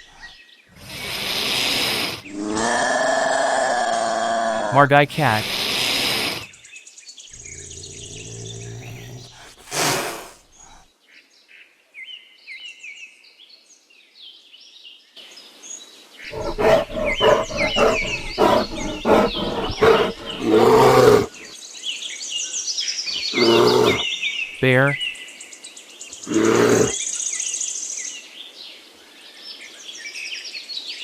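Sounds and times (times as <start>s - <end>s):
rapid growl-like pulses: 0.0s - 6.5s, 7.4s - 10.8s, 16.3s - 21.5s, 23.2s - 24.0s, 26.2s - 27.0s
birds chirping: 0.0s - 6.6s, 7.3s - 10.8s, 16.3s - 21.5s, 23.1s - 25.1s, 26.1s - 27.0s
wild cat calling: 0.0s - 6.6s, 7.3s - 10.8s, 16.3s - 21.5s, 23.1s - 25.0s, 26.2s - 27.0s.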